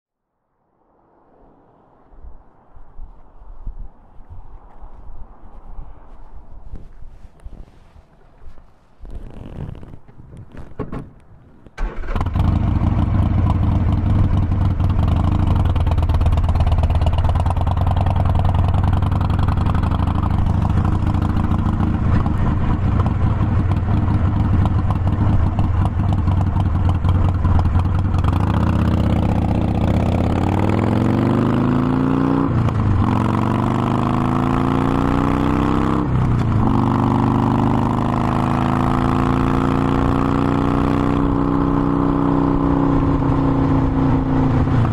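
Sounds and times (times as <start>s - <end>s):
motorcycle engine starting and idling: 11.6s - 31.6s
motorcycle revving and pulling away: 11.8s - 44.9s.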